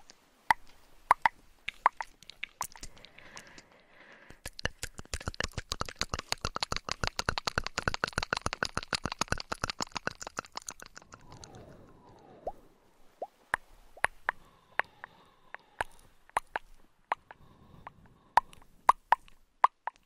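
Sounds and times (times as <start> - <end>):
fast crisp taps: 4.3 - 11.0.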